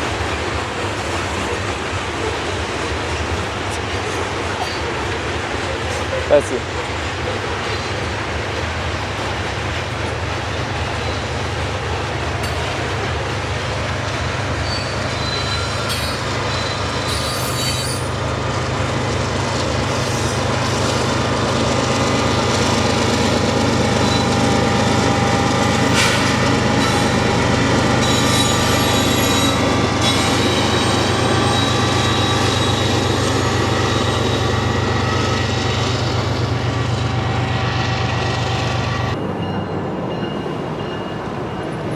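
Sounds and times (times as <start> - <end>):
freight train rumbling past: 0.0 - 41.9
train wheels squealing: 14.5 - 18.2, 19.9 - 21.2, 23.9 - 25.0, 25.6 - 36.5.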